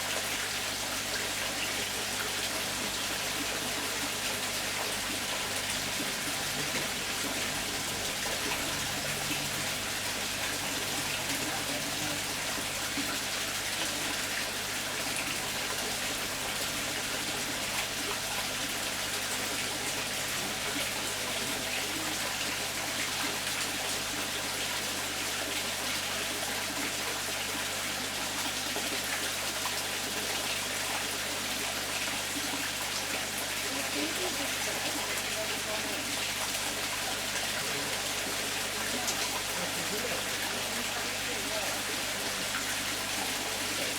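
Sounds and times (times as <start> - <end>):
water running and splashing: 0.0 - 43.9.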